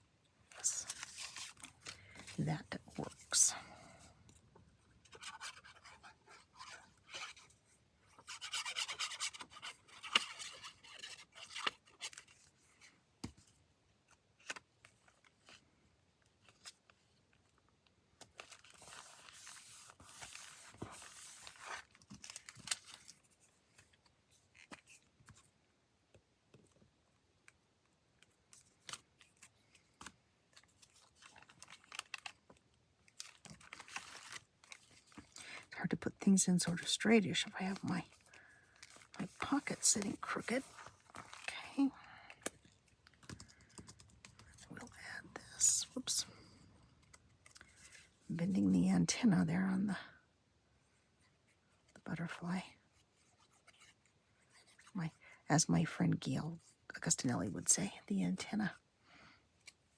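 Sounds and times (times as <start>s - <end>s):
paper rustling and rubbing: 0.6s - 3.4s, 5.0s - 12.5s, 18.4s - 23.9s, 36.7s - 41.5s.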